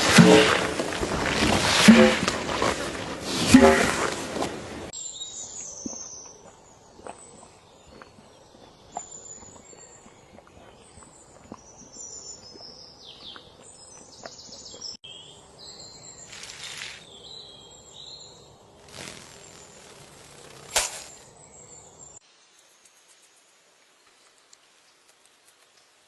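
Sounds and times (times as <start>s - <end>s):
small birds chirping: 5.0s - 26.0s
rustling bursts: 18.8s - 21.2s.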